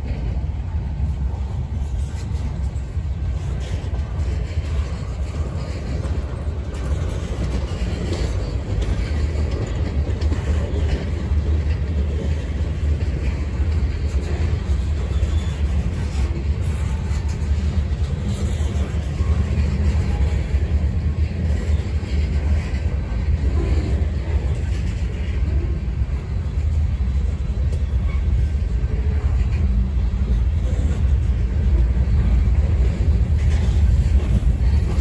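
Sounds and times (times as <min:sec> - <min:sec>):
steel wheels rumbling on rails: 0:00.0 - 0:35.0.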